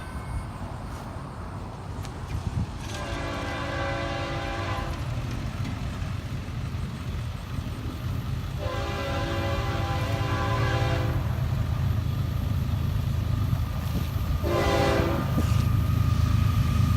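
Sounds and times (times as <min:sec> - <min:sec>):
train low rumble: 0:00.0 - 0:16.9
locomotive air horn blasts: 0:02.9 - 0:05.1, 0:08.6 - 0:11.5, 0:14.4 - 0:15.7.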